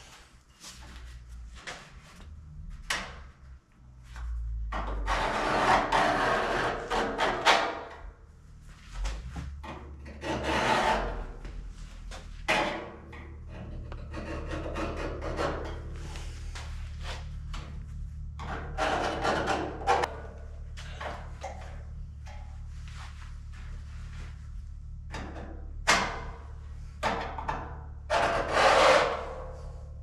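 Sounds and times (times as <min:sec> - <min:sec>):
sheet steel scraped by hand: 0:04.8 - 0:07.9, 0:10.0 - 0:11.9, 0:28.1 - 0:30.0.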